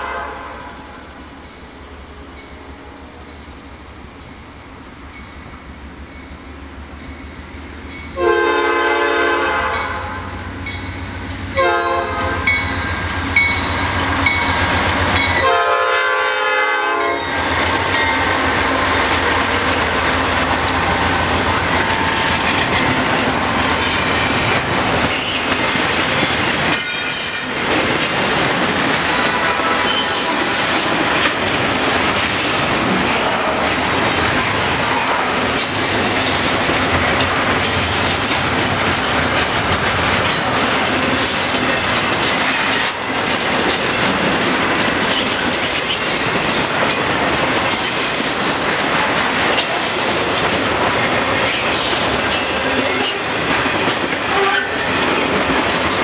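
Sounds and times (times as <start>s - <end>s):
locomotive horn blasts: 0.0s - 0.9s, 8.2s - 10.3s, 11.5s - 12.6s, 15.2s - 17.3s, 29.2s - 30.4s, 54.3s - 54.8s
train wheels on rails: 0.0s - 56.0s
clickety-clack over rail joints: 9.5s - 56.0s
high wheel squeals: 26.7s - 27.7s, 29.8s - 30.5s, 42.8s - 43.4s.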